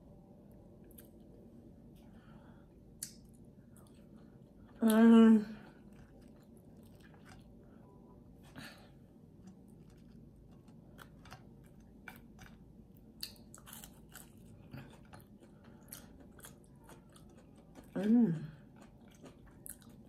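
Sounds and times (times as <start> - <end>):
crunchy chewing: 5.7 - 7.6, 9.3 - 20.0.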